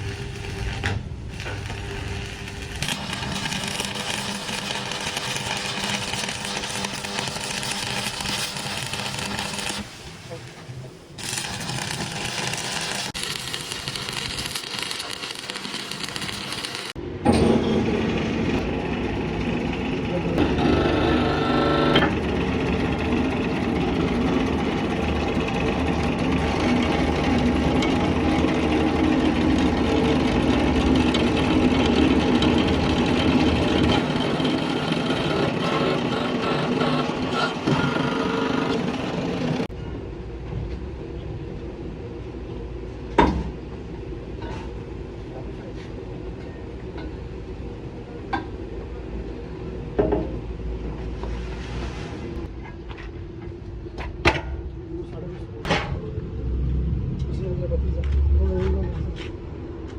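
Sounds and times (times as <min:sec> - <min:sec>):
engine running: 0:15.9 - 0:39.7
steady low rumble: 0:55.8 - 0:59.9.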